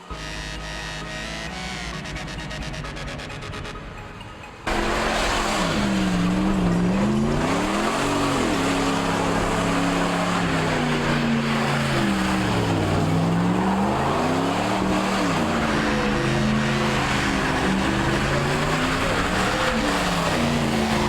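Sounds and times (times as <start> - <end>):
vehicle engine revving: 0.0 - 21.0
loud rushing noise: 4.7 - 21.0.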